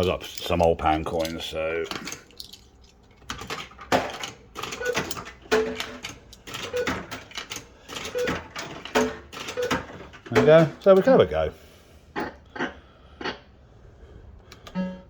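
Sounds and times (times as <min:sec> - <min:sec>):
coins clattering into slot machine: 0:00.0 - 0:11.0
short machine tone: 0:14.7 - 0:15.0.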